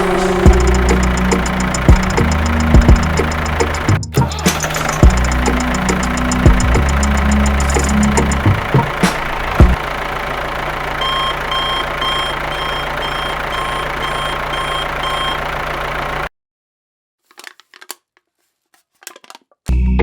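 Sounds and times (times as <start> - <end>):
reversing alarm beeping: 0.0 - 8.9, 11.0 - 15.5
motor hum: 0.0 - 16.3
music: 0.1 - 9.8, 19.7 - 20.0.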